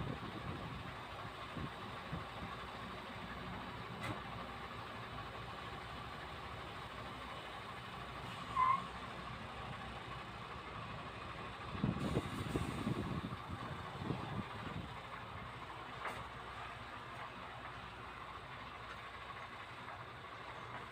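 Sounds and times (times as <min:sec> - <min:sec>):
diesel truck engine idling: 0:00.0 - 0:20.9
heavy low rumbling: 0:10.7 - 0:20.9.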